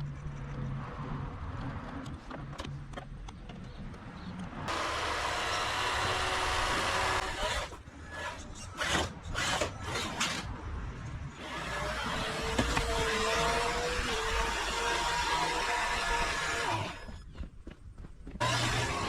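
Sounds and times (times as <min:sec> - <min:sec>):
rc truck motor driving: 0:18.4 - 0:19.0.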